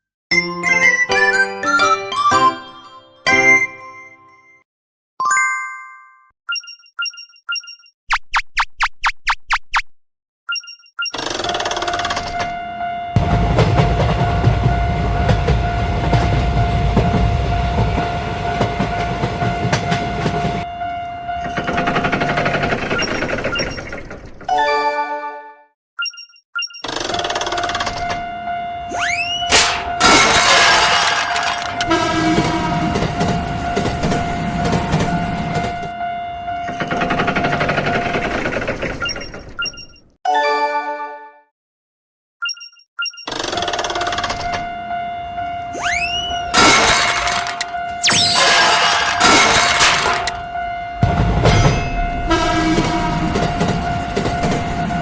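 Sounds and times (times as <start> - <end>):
train rumbling clatter: 13.2 - 20.7, 29.6 - 35.9, 48.6 - 55.0
train horn: 31.7 - 33.8, 35.8 - 36.9, 52.0 - 55.0
long held horn tone: 31.8 - 33.0, 51.9 - 53.4.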